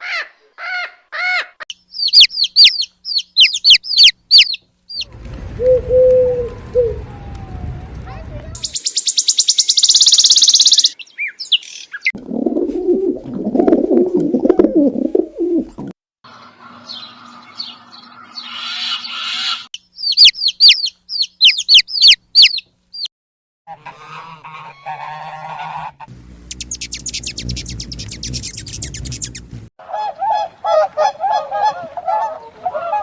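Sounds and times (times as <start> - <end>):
fast high bird trill: 2.0 - 5.1, 16.8 - 23.1, 26.2 - 29.6.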